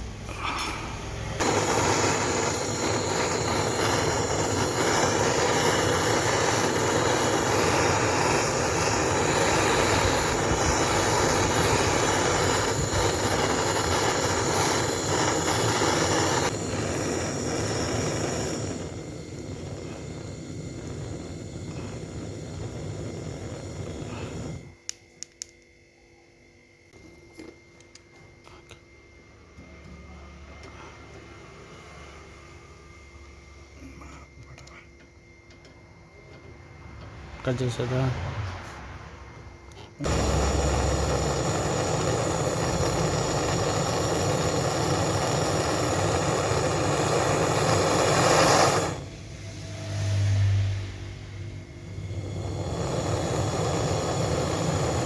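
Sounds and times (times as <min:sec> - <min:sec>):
gas torch rushing: 0:00.0 - 0:25.0, 0:36.6 - 0:55.0.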